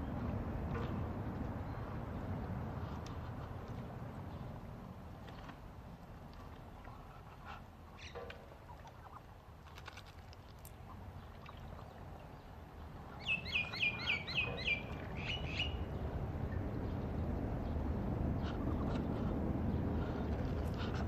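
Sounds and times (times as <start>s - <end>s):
low rumbling background noise: 0.0s - 21.0s
bird chirping: 13.2s - 17.8s.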